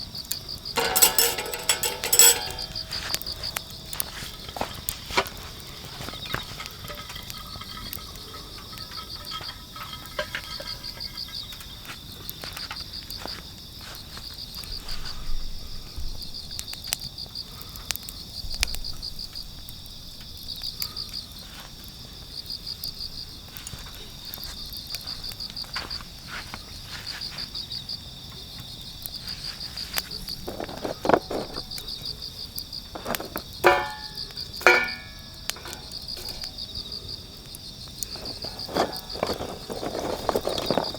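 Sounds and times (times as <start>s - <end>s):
crickets chirping: 0.0s - 40.9s
metallic clinks: 0.8s - 4.7s, 33.0s - 36.6s.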